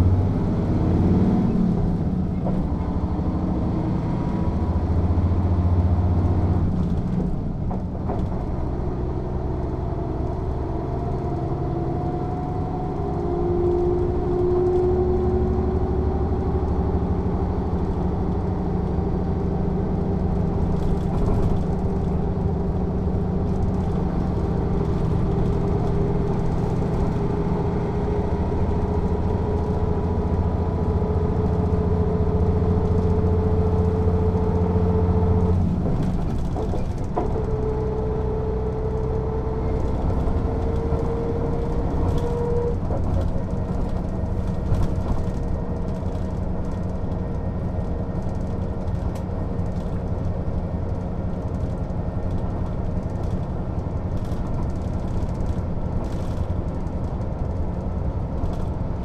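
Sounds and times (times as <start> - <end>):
bus diesel engine pulling away: 0.0 - 59.0.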